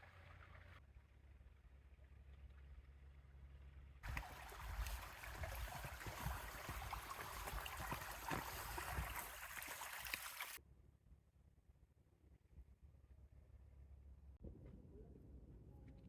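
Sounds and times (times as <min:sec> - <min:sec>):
creek water splashing over rocks: 0:04.0 - 0:10.6.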